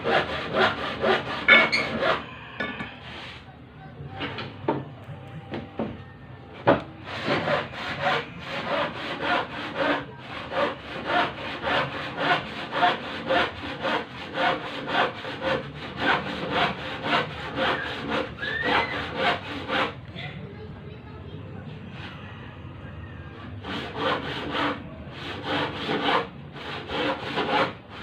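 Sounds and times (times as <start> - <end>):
hand tool rasping: 0.0 - 3.3, 7.1 - 19.9.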